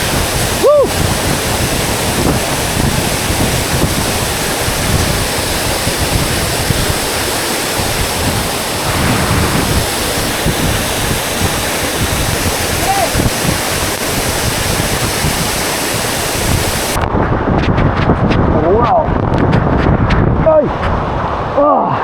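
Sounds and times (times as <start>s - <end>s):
waterfall roaring: 0.0s - 17.1s
person calling out: 0.6s - 0.9s, 12.8s - 13.2s.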